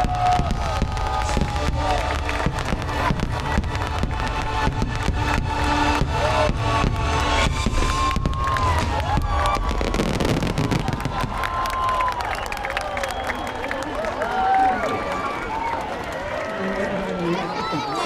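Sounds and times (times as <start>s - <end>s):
fireworks bursting: 0.0s - 13.5s
crowd cheering: 0.0s - 18.0s
music: 0.3s - 9.9s.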